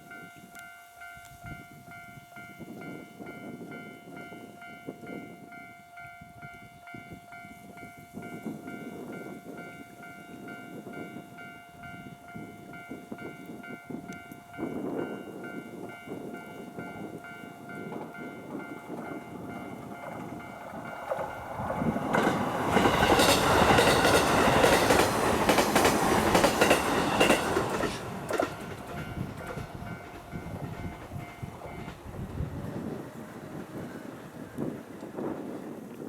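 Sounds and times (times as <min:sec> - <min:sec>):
level-crossing warning bell: 0:00.0 - 0:33.9
train wheels clattering over rail joints: 0:17.8 - 0:33.0.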